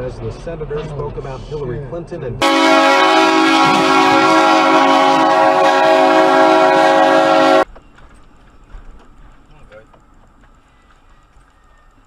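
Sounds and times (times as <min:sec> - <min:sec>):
train horn blast: 0:02.4 - 0:07.7.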